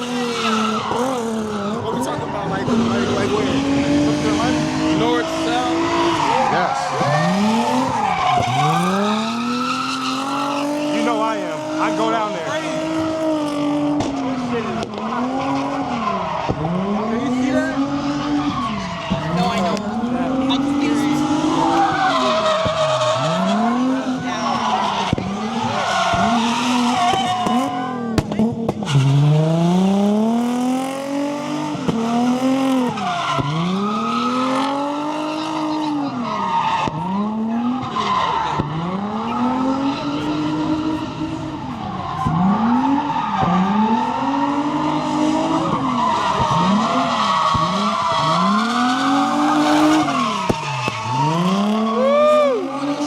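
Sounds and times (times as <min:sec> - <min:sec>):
tyres squealing: 0:00.0 - 0:13.0, 0:32.1 - 0:53.0
car engine revving: 0:00.0 - 0:53.0.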